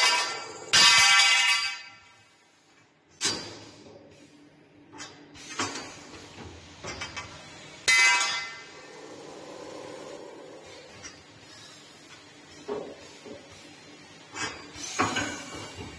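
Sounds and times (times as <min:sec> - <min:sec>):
steady machine hum: 0:07.4 - 0:14.8.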